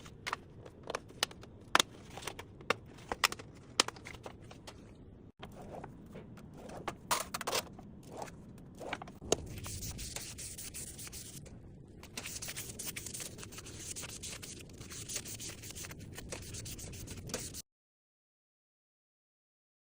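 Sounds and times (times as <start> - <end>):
filing or sanding scraping: 8.1 - 11.4, 12.2 - 17.6.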